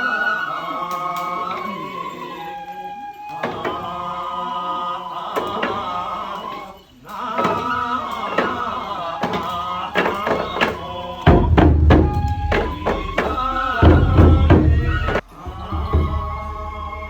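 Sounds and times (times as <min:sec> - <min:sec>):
chanted singing in held tones: 0:00.0 - 0:17.0
sharp percussion strikes: 0:07.4 - 0:16.5.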